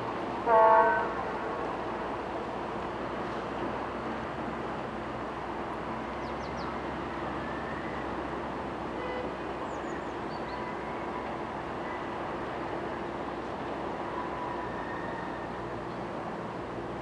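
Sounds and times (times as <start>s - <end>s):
diesel locomotive engine running: 0.0s - 17.0s.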